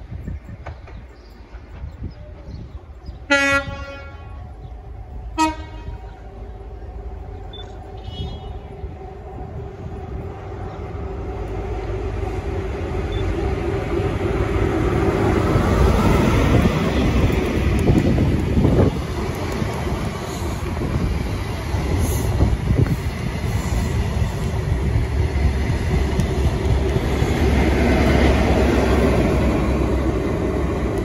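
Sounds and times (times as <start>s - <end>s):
locomotive engine drone: 0.0s - 31.0s
train rumbling on rails: 0.0s - 31.0s
two-tone train horn: 3.3s - 4.5s, 5.3s - 6.2s, 8.0s - 8.7s.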